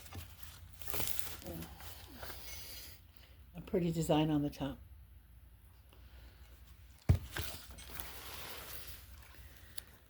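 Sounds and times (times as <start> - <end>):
soft rustling: 6.3 - 10.0.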